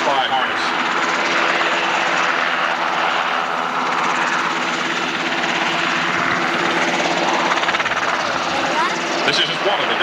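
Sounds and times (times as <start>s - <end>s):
helicopter hovering: 0.0s - 10.0s.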